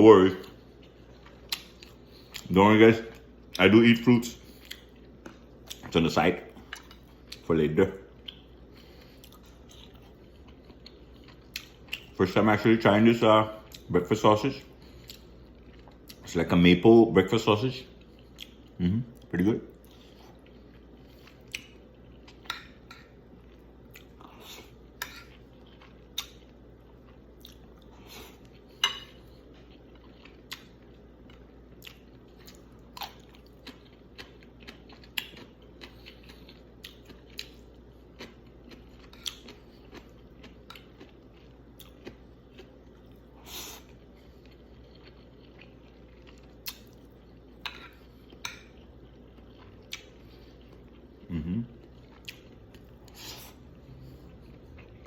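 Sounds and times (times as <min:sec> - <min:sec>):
person chewing: 0:00.3 - 0:03.7, 0:04.3 - 0:14.0, 0:14.6 - 0:16.3, 0:17.8 - 0:55.0
cutlery scraping on a plate: 0:25.0 - 0:25.3.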